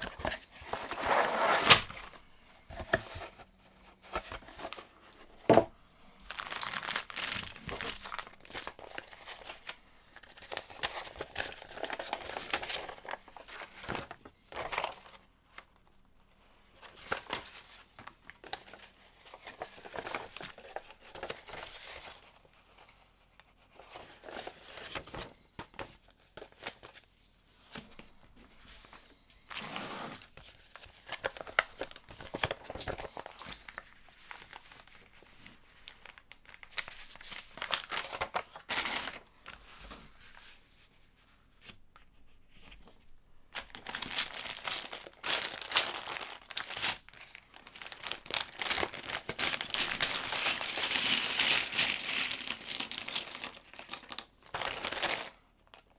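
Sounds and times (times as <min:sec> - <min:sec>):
packaging crinkling and tearing: 0:00.0 - 0:03.1, 0:06.2 - 0:15.1, 0:35.8 - 0:39.3, 0:43.5 - 0:55.9.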